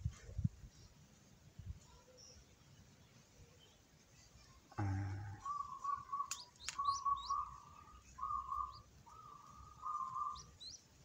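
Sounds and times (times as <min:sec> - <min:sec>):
high rising bird chirps: 0:04.9 - 0:10.9
squeaky bird calls: 0:05.0 - 0:10.8.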